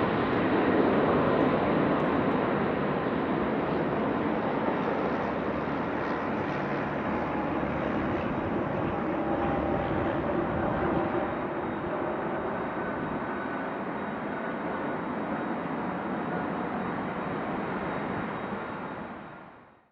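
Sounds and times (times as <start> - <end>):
jet engines rumbling: 0.0 - 19.5.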